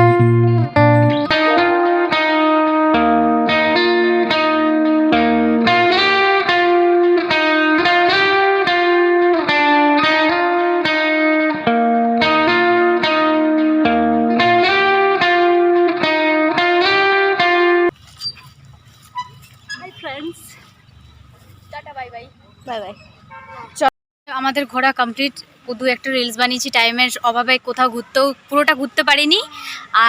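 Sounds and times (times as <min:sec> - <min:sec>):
plucked guitar melody: 0:00.0 - 0:17.9
repeating bass line: 0:00.0 - 0:17.9.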